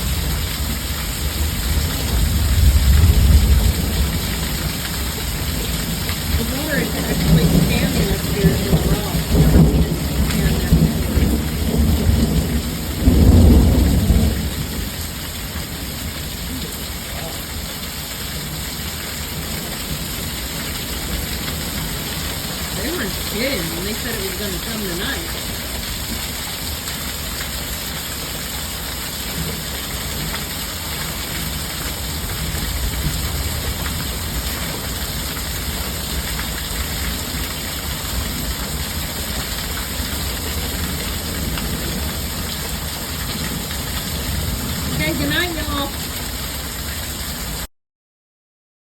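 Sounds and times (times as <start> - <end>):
thunder rumbling: 0.0 - 17.5
heavy rain: 0.0 - 47.7.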